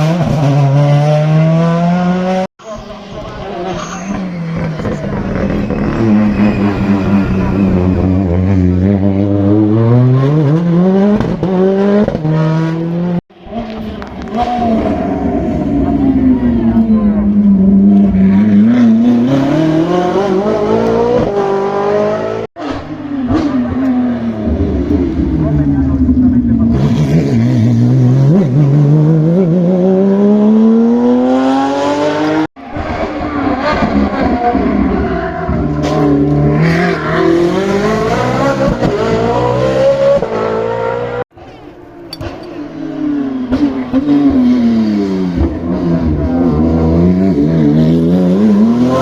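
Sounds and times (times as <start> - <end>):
race car engine at full throttle: 0.0 - 49.0
race car engine accelerating: 42.2 - 49.0.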